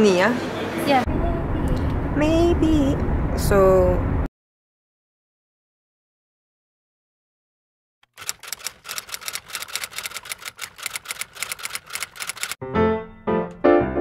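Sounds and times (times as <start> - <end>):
typewriter key clacks: 8.1 - 12.6
piano music: 12.6 - 14.0.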